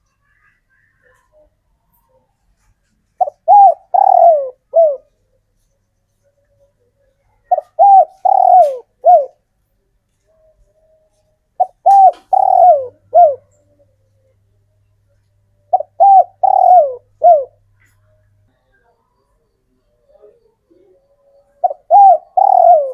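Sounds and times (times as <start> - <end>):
dove cooing: 0.4 - 5.2, 7.3 - 9.4, 11.6 - 14.3, 15.7 - 18.0, 20.0 - 22.9.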